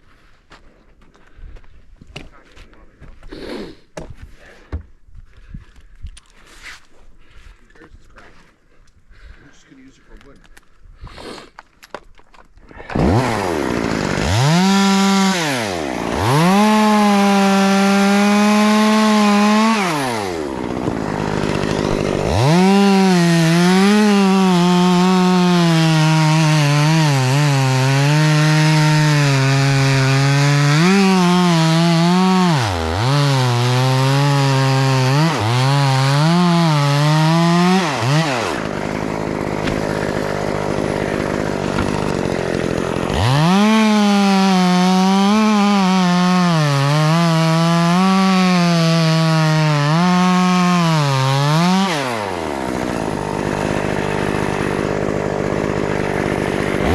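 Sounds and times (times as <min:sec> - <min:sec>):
chainsaw revving and cutting wood: 0:12.7 - 0:56.9.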